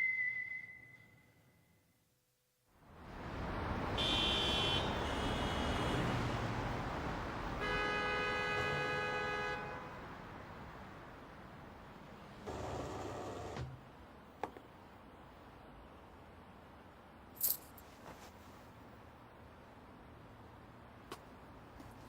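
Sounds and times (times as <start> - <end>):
street traffic: 2.7 - 22.0
car horn: 4.0 - 6.2, 7.6 - 10.0.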